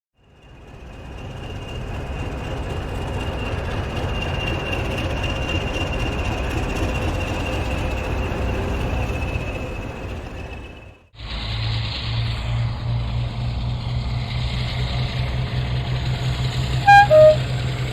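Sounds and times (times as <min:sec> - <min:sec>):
train rumbling: 0:00.6 - 0:17.9
high-pitched whine or squeal: 0:16.9 - 0:17.6.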